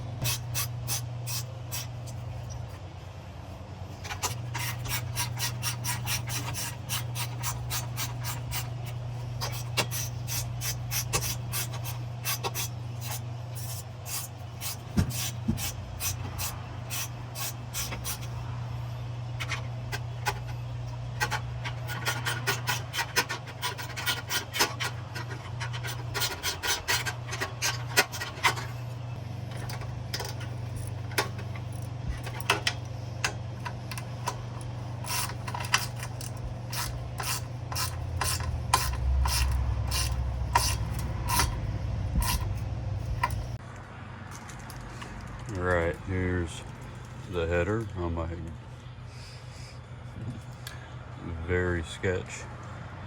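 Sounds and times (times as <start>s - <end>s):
steady low hum: 0.0s - 53.0s
hand ratchet clicking: 4.0s - 18.4s, 21.2s - 28.7s, 29.5s - 43.6s.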